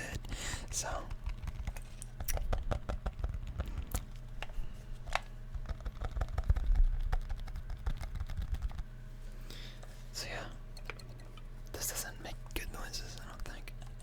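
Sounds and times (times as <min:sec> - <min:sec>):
fingers tapping on hard object: 0:02.2 - 0:03.7.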